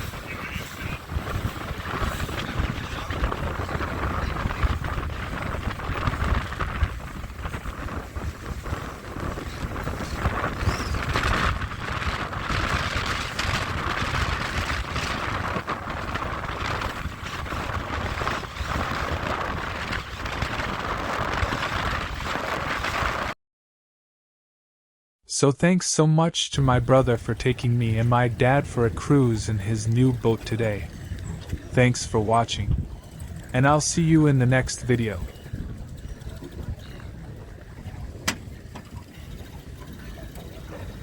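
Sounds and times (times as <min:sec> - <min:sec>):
water rushing past hull: 0:00.0 - 0:23.4
wind buffeting microphone: 0:00.0 - 0:23.4, 0:26.7 - 0:41.0.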